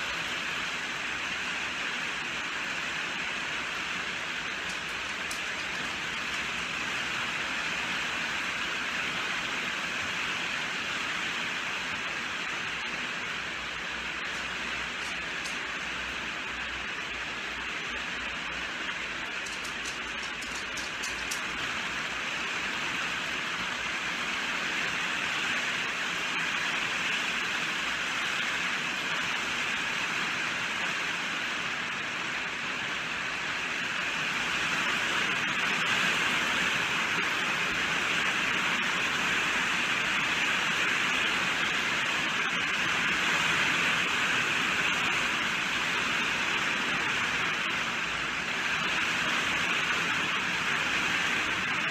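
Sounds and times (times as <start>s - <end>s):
steady rain falling: 0.0s - 51.9s.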